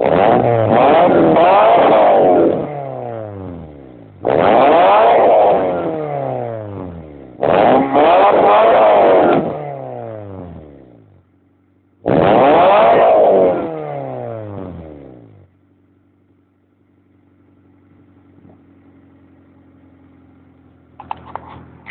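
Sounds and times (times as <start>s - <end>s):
car engine revving: 0.0s - 11.3s, 12.0s - 16.2s.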